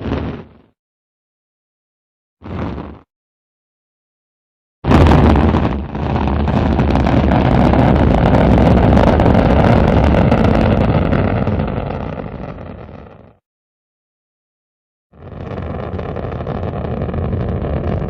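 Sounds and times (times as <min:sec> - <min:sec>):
rocket launch roar: 0:04.9 - 0:13.4, 0:15.2 - 0:18.0.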